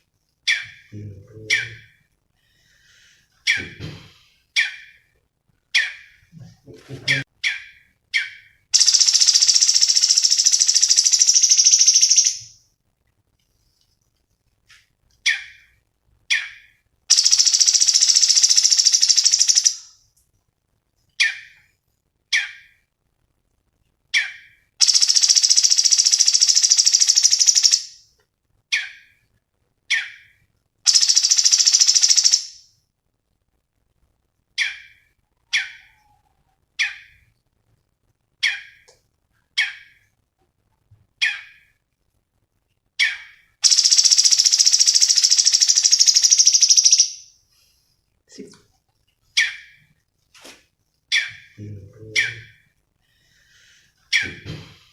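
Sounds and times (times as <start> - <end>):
songbird rapid high trills: 24.8 - 27.9, 30.9 - 32.5, 43.6 - 47.2.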